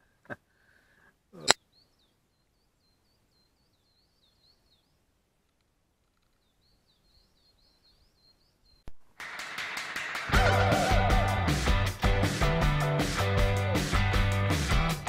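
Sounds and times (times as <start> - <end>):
songbird singing: 0.0 - 9.0
guitar rock music: 10.3 - 15.0.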